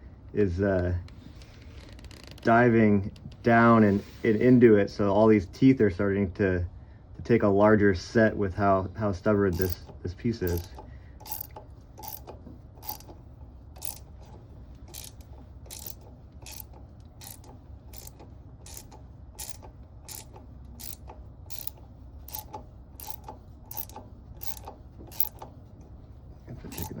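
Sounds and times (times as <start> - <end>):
impeller puller clicking: 9.5 - 25.6, 26.5 - 27.0.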